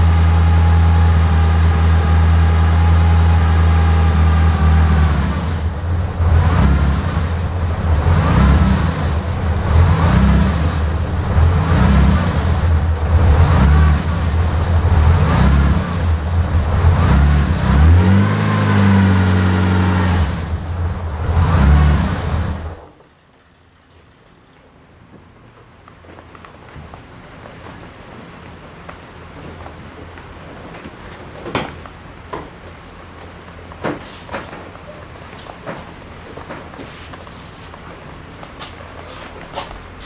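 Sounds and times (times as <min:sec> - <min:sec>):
car engine revving: 0:00.0 - 0:22.8.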